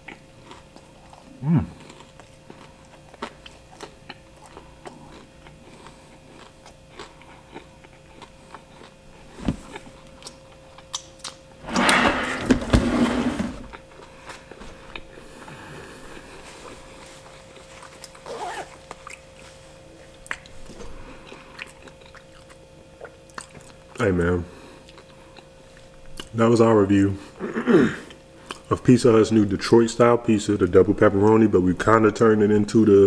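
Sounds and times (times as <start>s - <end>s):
chewing and lip smacks: 0.0s - 11.4s, 16.1s - 24.1s, 24.8s - 26.4s, 28.1s - 28.7s
faint steady hum: 0.0s - 33.0s.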